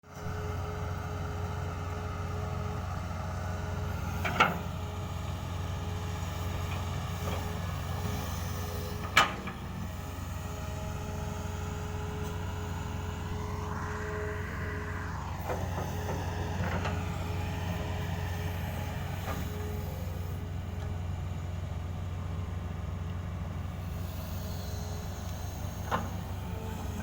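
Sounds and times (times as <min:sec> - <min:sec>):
diesel engine rumbling: 0:00.1 - 0:27.0.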